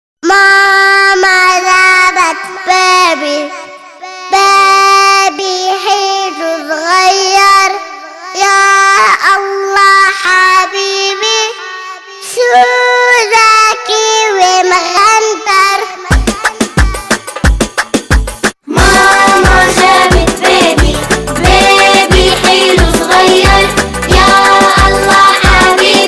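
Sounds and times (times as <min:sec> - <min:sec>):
child singing: 0:00.2 - 0:17.6, 0:18.6 - 0:26.0
rhythmic musical beat: 0:16.1 - 0:26.0.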